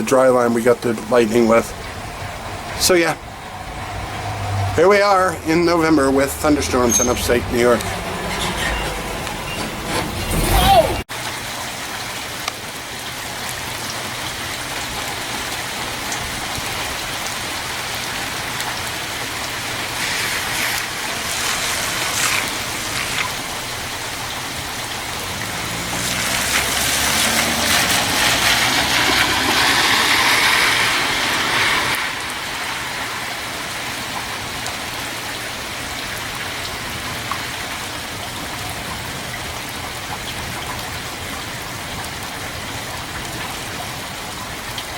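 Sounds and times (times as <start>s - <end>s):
steady rain falling: 11.0s - 44.9s.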